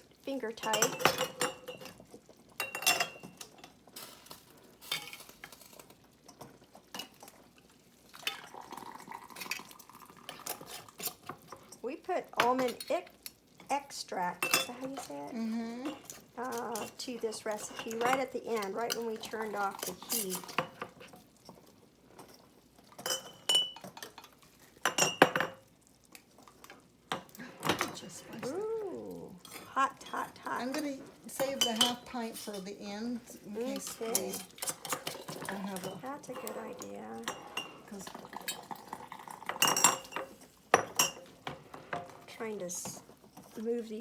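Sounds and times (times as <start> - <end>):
stirring and scraping: 0.3 - 8.5, 9.4 - 44.0
glass jars clinking: 33.7 - 41.3.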